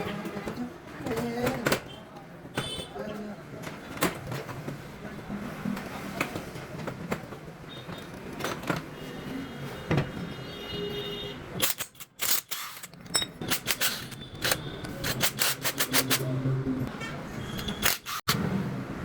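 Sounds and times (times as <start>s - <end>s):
tools and engine parts knocking: 11.6s - 16.2s.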